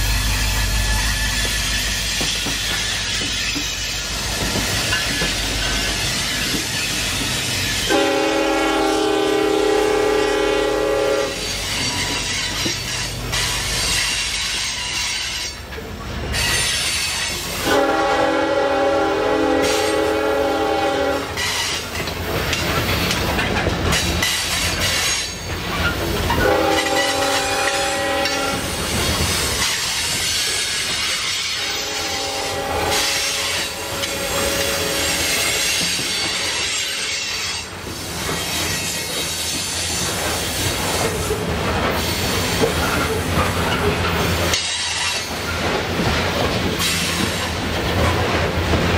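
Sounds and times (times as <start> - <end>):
train rumbling on track: 0.0 - 48.9
locomotive air horn blasts: 7.9 - 11.4, 17.6 - 21.6, 26.4 - 28.8, 31.4 - 35.6.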